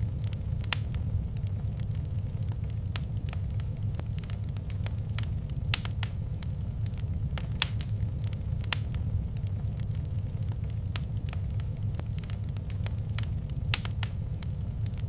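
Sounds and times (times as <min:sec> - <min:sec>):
wood fire crackling in fireplace: 0:00.0 - 0:15.0.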